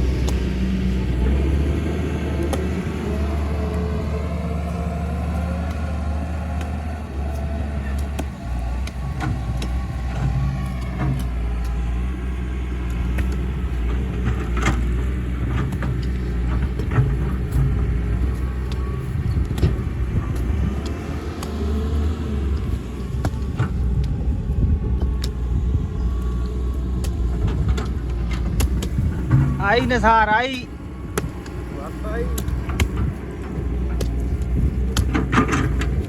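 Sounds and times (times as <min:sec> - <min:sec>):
excavator diesel engine running: 0:00.0 - 0:36.0
sharp knocks and clanks: 0:27.0 - 0:36.0.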